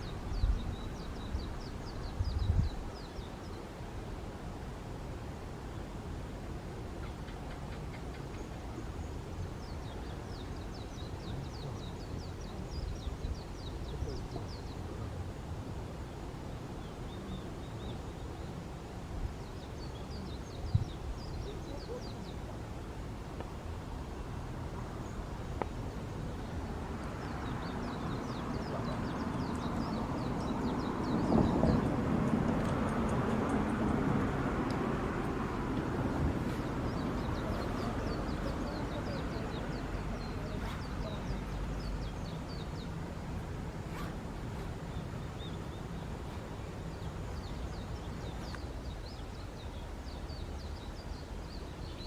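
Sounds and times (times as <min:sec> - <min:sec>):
steady low rumble: 0:19.1 - 0:51.6
bird chirping: 0:19.4 - 0:22.5, 0:36.1 - 0:52.0.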